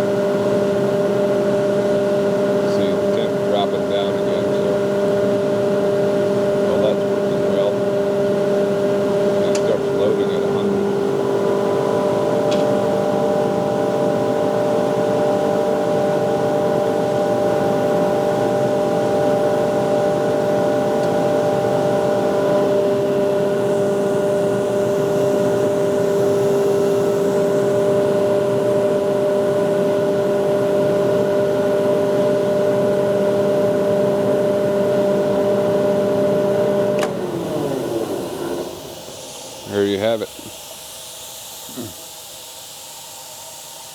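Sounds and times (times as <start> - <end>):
air compressor humming: 0.0 - 43.9
compressor switch click: 9.5 - 9.8, 36.9 - 37.2.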